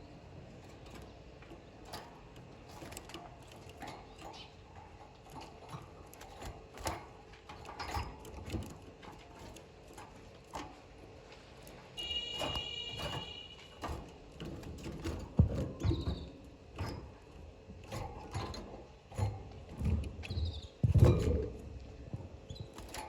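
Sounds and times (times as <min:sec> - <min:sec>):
light clicks and taps in cage: 0:00.6 - 0:23.0
faint bird chirp: 0:20.2 - 0:20.8.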